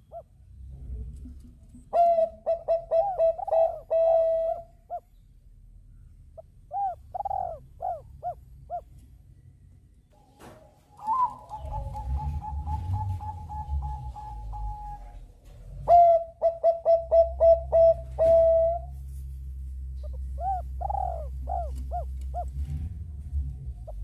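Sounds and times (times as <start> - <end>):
dove cooing: 1.7 - 5.1, 6.4 - 9.0, 11.0 - 18.9, 20.0 - 22.6
low rumble: 11.4 - 16.0, 17.8 - 24.0.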